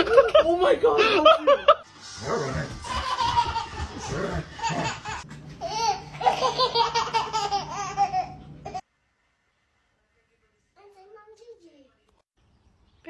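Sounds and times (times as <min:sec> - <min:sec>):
person laughing hard: 0:02.8 - 0:07.6.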